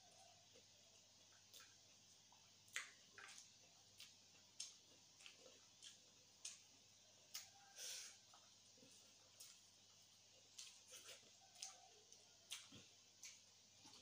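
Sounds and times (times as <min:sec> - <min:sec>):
mouth clicks and smacks chewing: 0:00.5 - 0:07.6, 0:10.4 - 0:14.0.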